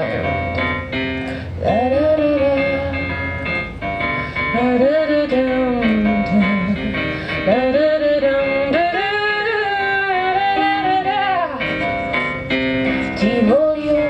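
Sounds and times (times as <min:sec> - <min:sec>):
instrumental accompaniment: 0:00.0 - 0:14.0
woman singing wordless runs: 0:13.0 - 0:14.0.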